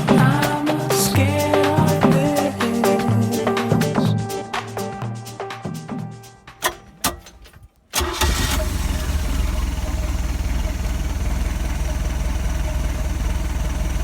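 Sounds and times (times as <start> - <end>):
boat engine idling: 8.0 - 14.0.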